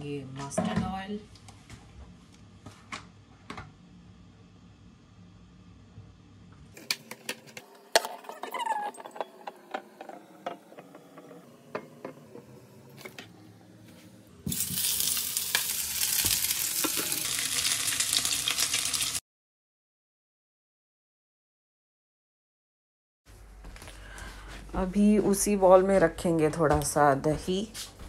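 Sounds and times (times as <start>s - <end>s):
kitchen utensils clinking: 6.8s - 10.6s, 14.5s - 19.1s
food sizzling in hot oil: 14.5s - 19.2s.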